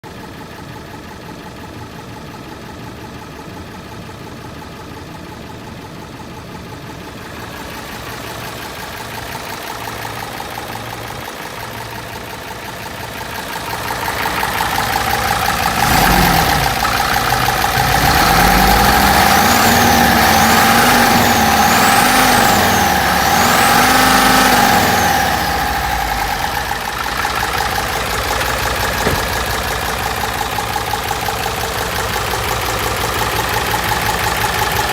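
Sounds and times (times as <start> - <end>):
diesel truck engine revving: 13.3 - 34.9.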